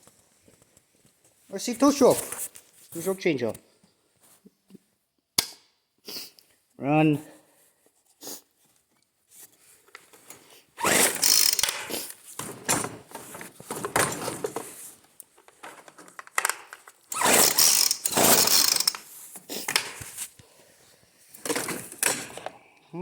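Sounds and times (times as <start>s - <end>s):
engine pull-start cranking: 10.8s - 12.1s, 17.1s - 19.1s.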